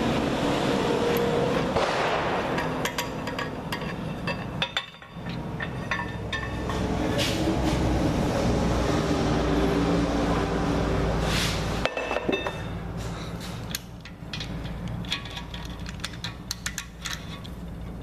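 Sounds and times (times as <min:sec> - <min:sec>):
metal clicks and clinks: 0:02.6 - 0:06.8, 0:13.6 - 0:18.0.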